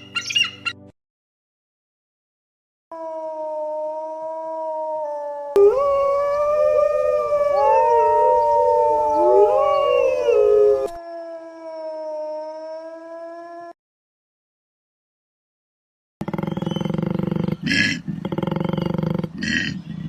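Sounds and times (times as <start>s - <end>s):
dogs howling: 3.0s - 13.4s.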